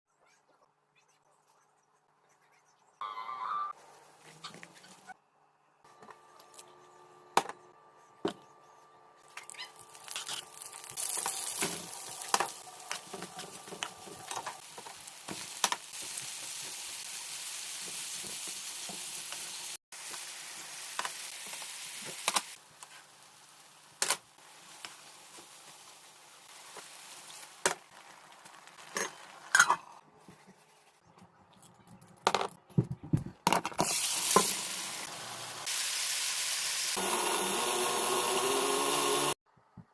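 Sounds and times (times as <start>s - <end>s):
food sizzling in a pan: 9.8s - 29.5s, 33.8s - 39.4s.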